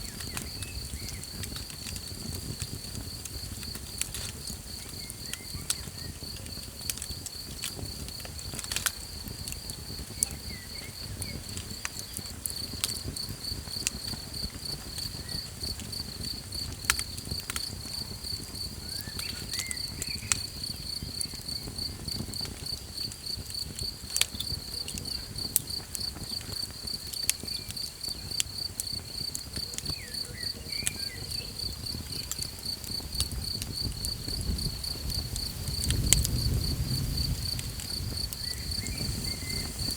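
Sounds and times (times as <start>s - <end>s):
campfire crackling and popping: 0.0s - 39.9s
cricket chirping trill: 0.0s - 39.9s.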